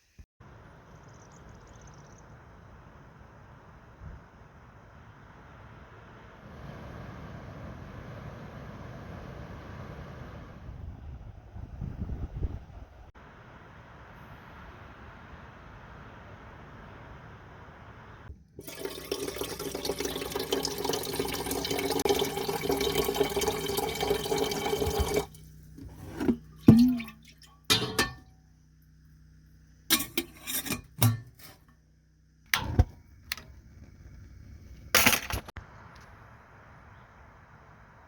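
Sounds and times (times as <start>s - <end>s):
liquid pouring: 18.6s - 28.0s.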